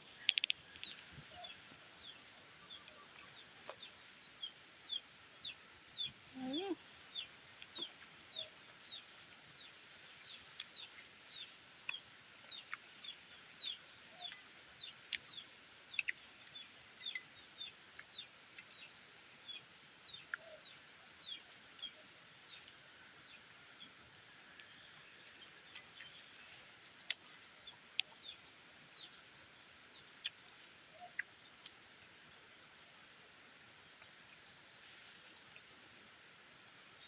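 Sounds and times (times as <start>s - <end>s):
faint sharp clicks: 0.2s - 1.0s, 25.7s - 28.2s.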